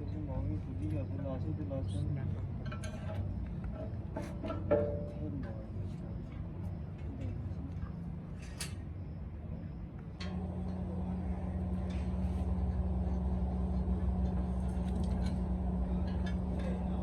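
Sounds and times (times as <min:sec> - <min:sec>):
machine humming: 0:10.2 - 0:17.0.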